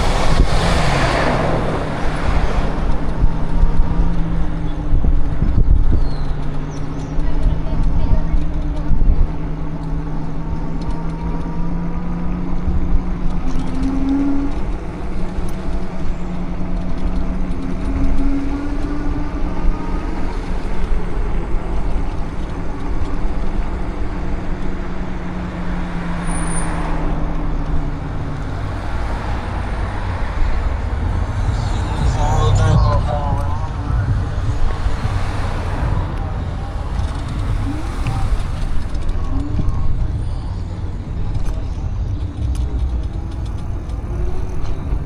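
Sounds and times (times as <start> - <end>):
heavy low rumble: 0.0 - 6.0, 27.0 - 45.0
vehicle engine hum: 0.0 - 45.0.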